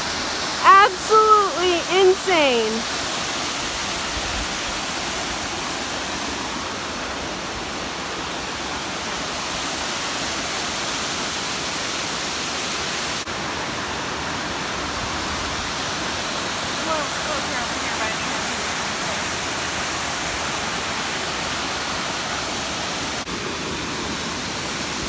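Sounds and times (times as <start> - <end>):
waterfall rushing: 13.3 - 24.8.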